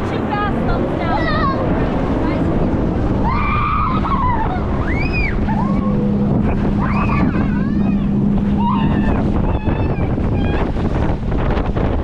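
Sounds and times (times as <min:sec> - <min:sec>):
boat engine drone: 0:00.0 - 0:12.0
rushing water: 0:00.0 - 0:12.0
wind: 0:00.0 - 0:12.0
people whooping and squealing: 0:03.2 - 0:10.8.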